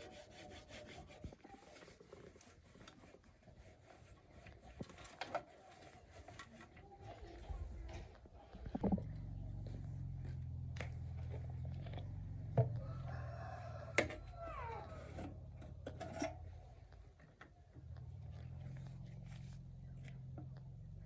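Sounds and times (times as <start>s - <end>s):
rooster crowing: 12.7s - 15.2s.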